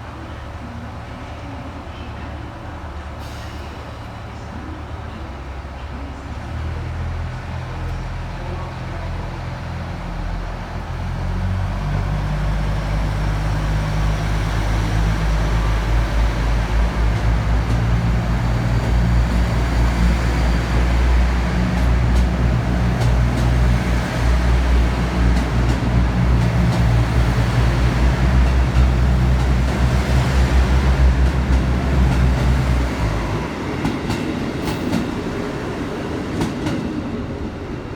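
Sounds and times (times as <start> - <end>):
diesel railcar engine growling: 0.0 - 37.9
wheels clacking over rail joints: 13.5 - 35.4.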